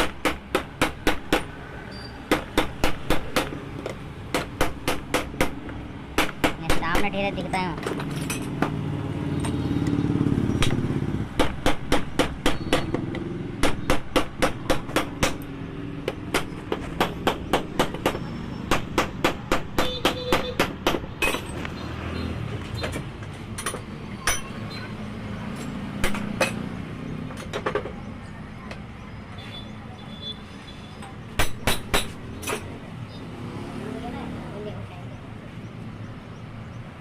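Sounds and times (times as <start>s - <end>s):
hammer striking metal: 23.6s - 24.6s, 31.4s - 32.7s.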